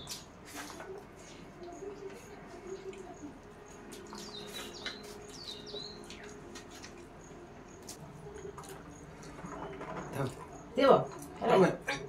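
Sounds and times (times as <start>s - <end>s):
small bird chirping: 1.7s - 6.9s.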